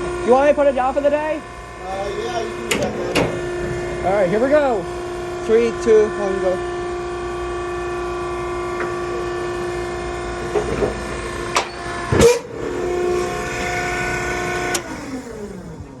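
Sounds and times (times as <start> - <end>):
hydraulic power unit whining: 0.0 - 16.0
clicks: 2.7 - 3.6, 11.5 - 15.8
heavy clunk: 2.7 - 5.4.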